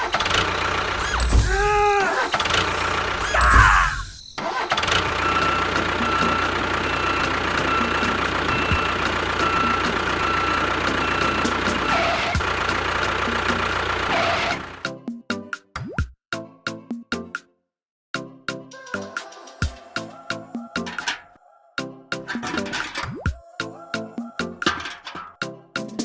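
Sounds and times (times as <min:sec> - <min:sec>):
small motor running: 0:00.0 - 0:14.8.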